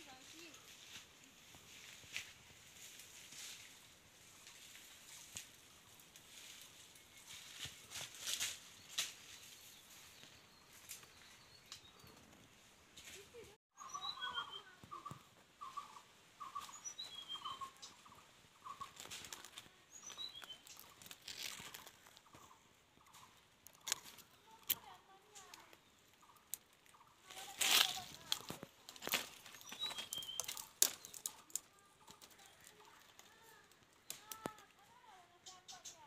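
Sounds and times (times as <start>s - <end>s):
high falling bird chirps: 13.8s - 23.3s, 29.4s - 32.9s
faint clicks: 30.1s - 34.8s.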